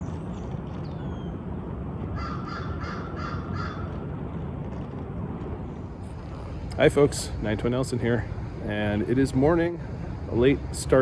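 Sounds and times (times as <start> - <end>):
low background noise: 0.0 - 11.0
bird calling: 2.2 - 4.0.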